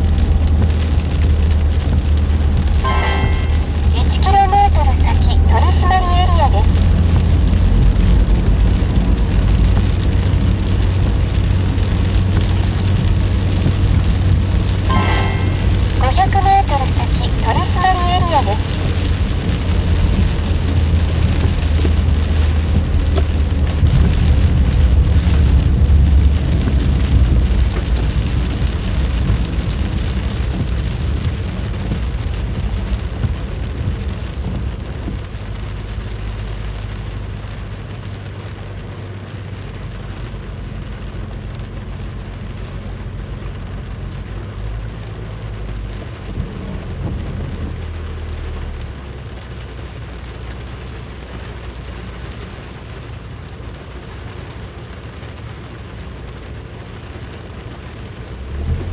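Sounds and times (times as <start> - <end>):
deep rumble of thunder: 0.0 - 4.0, 6.7 - 14.9, 18.6 - 37.0
rain beating down: 0.0 - 58.9.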